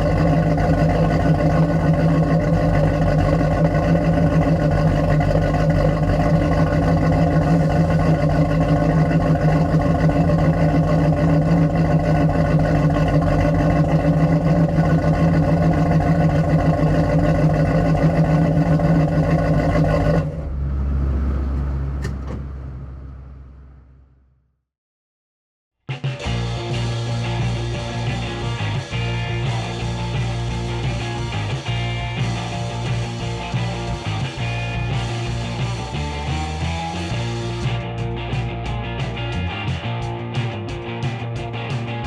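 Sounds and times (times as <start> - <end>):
vee-eight engine running: 0.0 - 22.1
low rumble: 0.0 - 24.2, 26.7 - 39.7.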